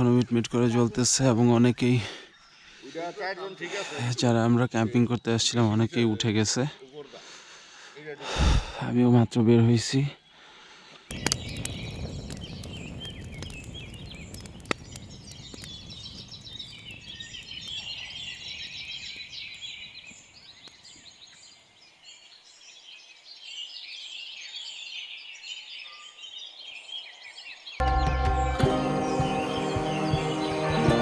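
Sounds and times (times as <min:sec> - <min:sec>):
birds chirping and chattering: 0:11.1 - 0:22.2, 0:27.8 - 0:31.0.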